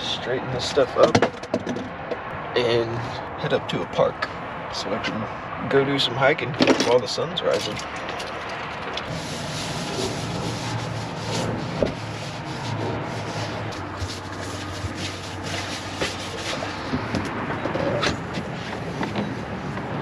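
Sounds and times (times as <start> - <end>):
camping gear rustling and knocking: 11.1 - 19.9.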